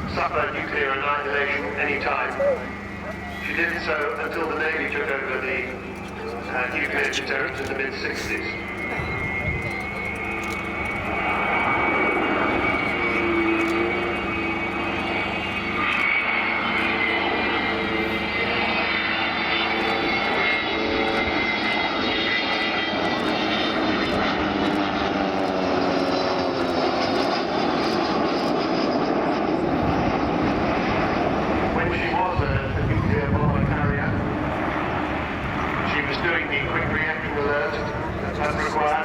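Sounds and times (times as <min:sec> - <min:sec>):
jet engines roaring overhead: 0:00.0 - 0:39.0.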